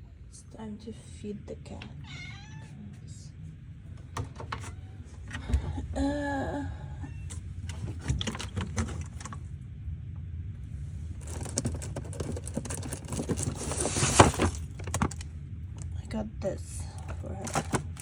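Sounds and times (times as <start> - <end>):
cat meowing: 2.0 - 2.8, 6.9 - 7.4
rattling and rustling of cat food: 3.9 - 5.8, 7.1 - 9.6, 10.7 - 16.0, 16.8 - 18.0.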